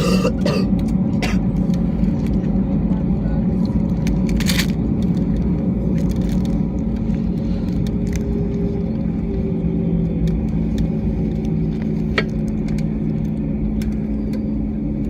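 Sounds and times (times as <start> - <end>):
jet cabin drone: 0.0 - 15.0.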